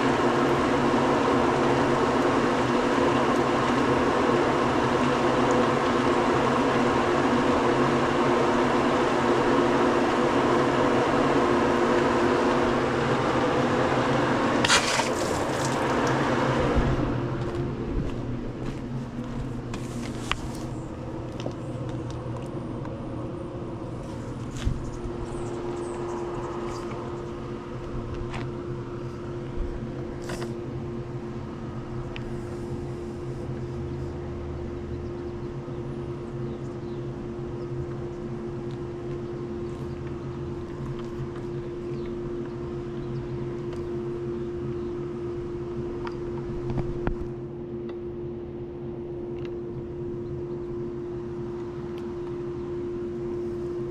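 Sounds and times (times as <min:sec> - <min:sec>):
pool pump motor humming: 0:00.0 - 0:53.9.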